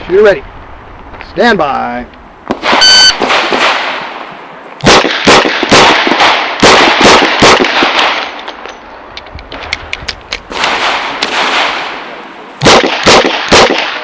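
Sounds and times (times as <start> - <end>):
sharp cracks of gunfire: 2.5 - 8.4, 10.5 - 14.0.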